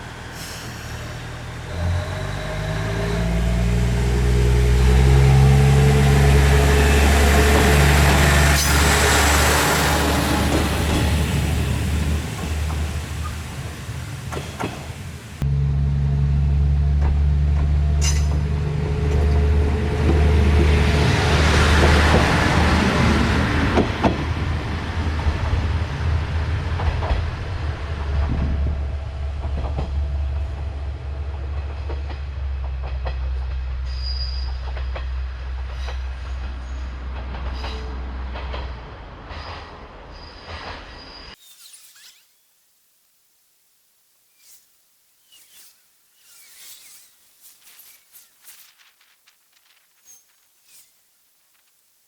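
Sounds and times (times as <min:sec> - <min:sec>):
rushing hiss: 0:00.0 - 0:15.4
diesel railcar engine drone: 0:00.0 - 0:41.4.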